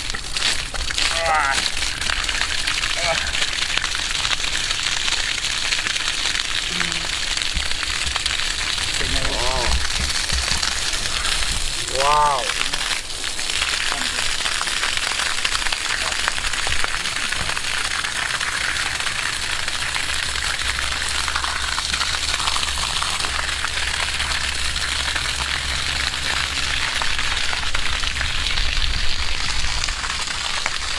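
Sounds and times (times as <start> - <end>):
water rushing and splashing: 0.0 - 30.9.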